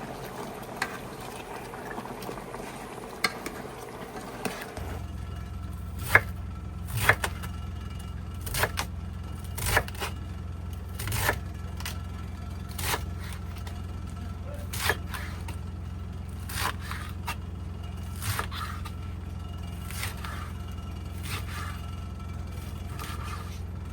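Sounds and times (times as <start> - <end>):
low hum: 0.0 - 23.9
utensil scraping cookware: 0.1 - 6.3, 12.6 - 23.9.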